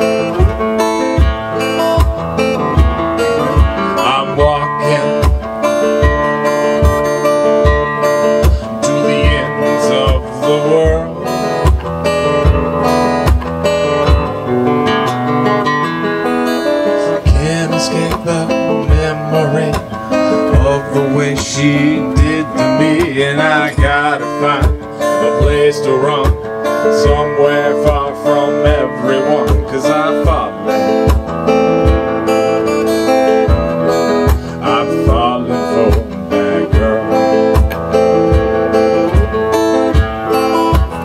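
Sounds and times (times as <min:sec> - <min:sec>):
acoustic guitar strumming chords: 0:00.0 - 0:41.0
person singing: 0:02.6 - 0:11.7, 0:16.8 - 0:31.1, 0:33.4 - 0:41.0.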